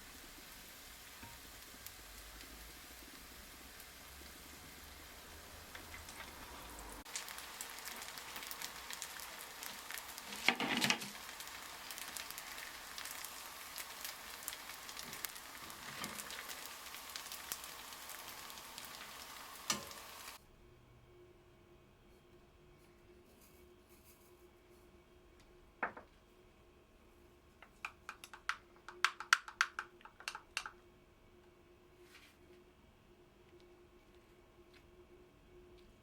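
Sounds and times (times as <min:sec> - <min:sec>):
patties sizzling in hot oil: 0:00.0 - 0:20.4.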